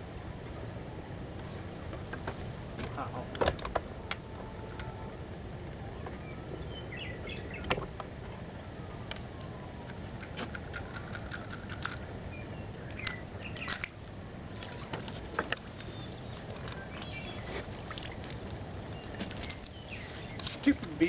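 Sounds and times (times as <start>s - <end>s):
low outdoor rush: 0.0s - 21.0s
faint gliding whistles: 5.8s - 7.7s
small birds chirping: 6.0s - 7.8s, 12.3s - 13.9s, 15.7s - 18.2s, 18.8s - 21.0s.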